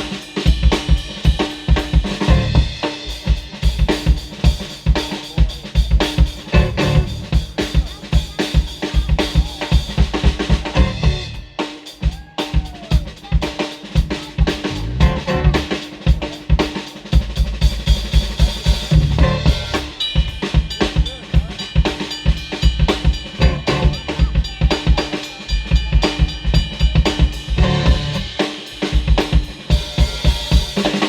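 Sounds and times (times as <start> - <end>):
drum kit beat: 0.0 - 31.0
guitar and bass: 2.2 - 2.8, 6.5 - 7.3, 10.7 - 11.4, 14.7 - 15.8, 18.9 - 19.8, 23.4 - 24.2, 27.6 - 28.4.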